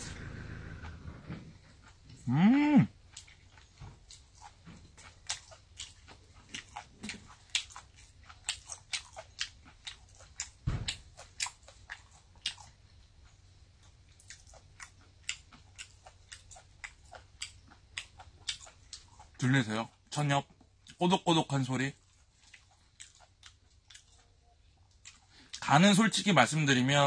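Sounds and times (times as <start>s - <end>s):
crisp crunchy chewing: 3.1s - 21.1s, 21.9s - 25.7s
dull thump: 10.6s - 11.0s.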